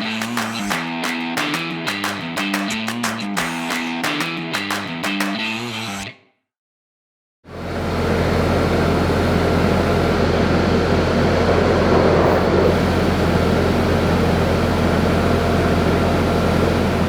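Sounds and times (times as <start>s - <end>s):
fan blowing air: 7.6s - 17.0s.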